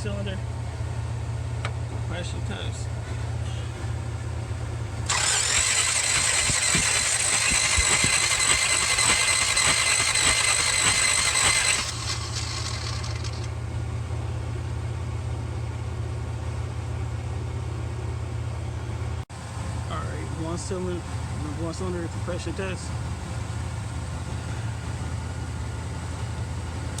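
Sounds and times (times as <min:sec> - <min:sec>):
starter motor cranking engine: 0:05.0 - 0:13.6.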